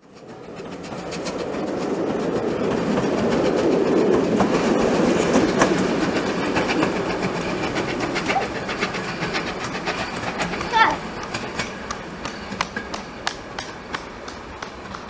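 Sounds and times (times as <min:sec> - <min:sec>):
train wheels clicking over rail joints: 0:00.0 - 0:15.0.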